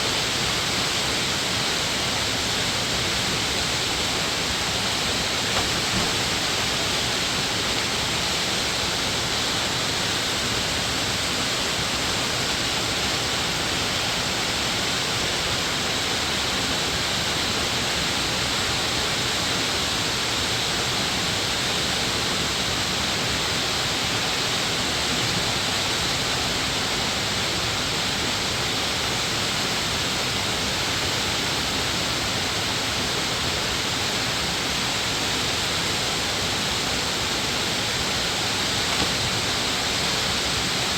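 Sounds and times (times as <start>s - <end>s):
stream rushing water: 20.1s - 40.9s.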